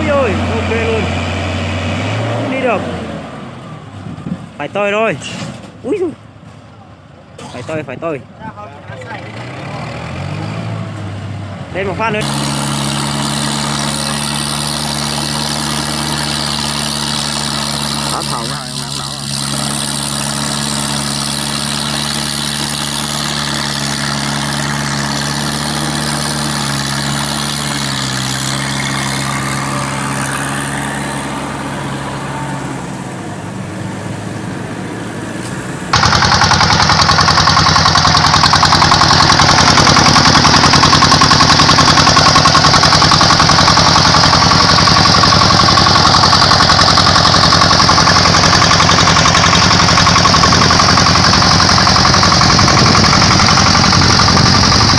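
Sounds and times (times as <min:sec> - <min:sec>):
small diesel engine running: 0:00.0 - 0:06.2, 0:07.2 - 0:54.9
fast-pulsing engine rattle: 0:11.8 - 0:31.3, 0:35.9 - 0:54.9.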